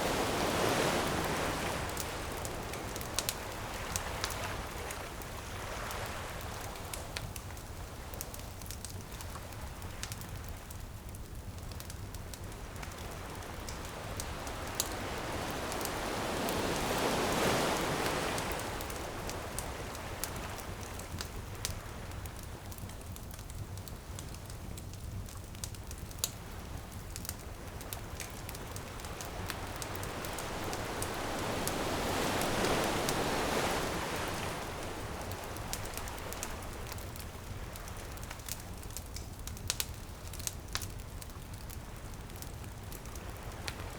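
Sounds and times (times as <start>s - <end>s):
ocean waves washing ashore: 0.0s - 8.4s, 12.4s - 23.1s, 26.4s - 39.0s
bonfire crackling: 0.0s - 43.9s.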